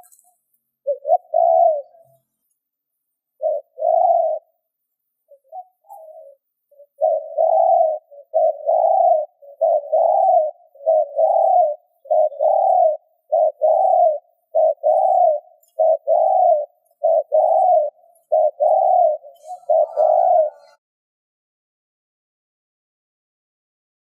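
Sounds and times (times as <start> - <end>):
dove cooing: 0.0 - 2.2, 3.3 - 4.6, 5.2 - 20.8.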